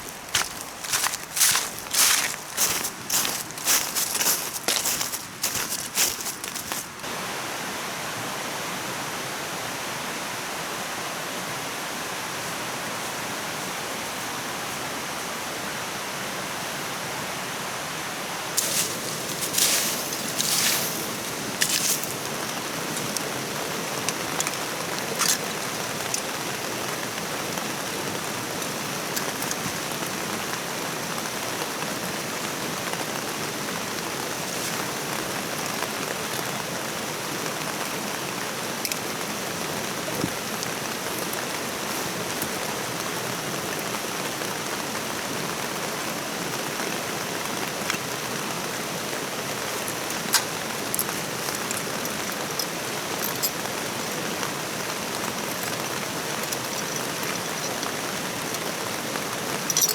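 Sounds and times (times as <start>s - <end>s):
sharp clicks and rustles: 18.6s - 26.4s, 49.5s - 59.9s.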